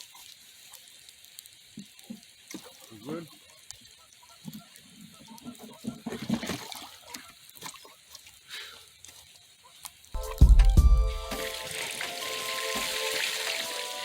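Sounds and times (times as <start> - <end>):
water splashing and sloshing: 0.0 - 10.1, 11.3 - 14.0
loud music with deep bass: 10.2 - 11.6.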